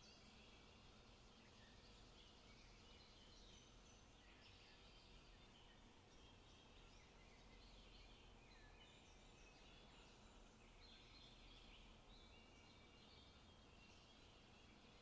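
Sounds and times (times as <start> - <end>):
low steady outdoor rumble: 0.0 - 15.0
small birds chirping and trilling: 0.0 - 15.0.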